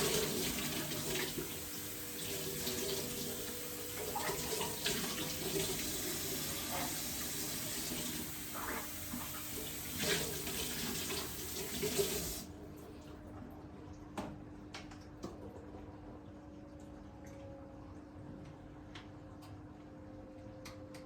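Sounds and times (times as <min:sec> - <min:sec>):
tap water running into sink: 0:00.0 - 0:12.5.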